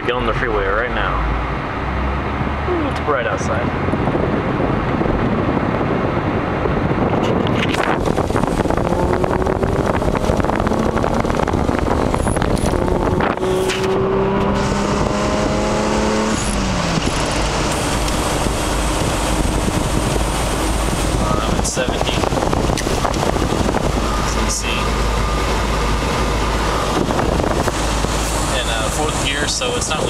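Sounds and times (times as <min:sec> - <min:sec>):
car engine accelerating: 0:00.0 - 0:30.0
road and wind noise: 0:00.0 - 0:30.0.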